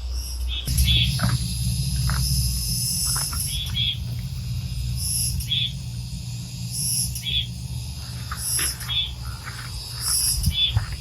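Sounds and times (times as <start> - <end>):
insects chirring: 0.0 - 11.0
low steady hum: 0.0 - 11.0.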